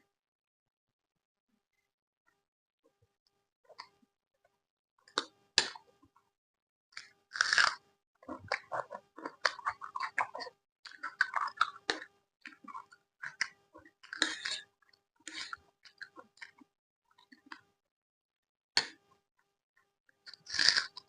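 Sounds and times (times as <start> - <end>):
crackly chewing: 7.0 - 17.6, 20.3 - 21.0
crunchy bites into fried food: 7.3 - 12.1, 20.3 - 21.0.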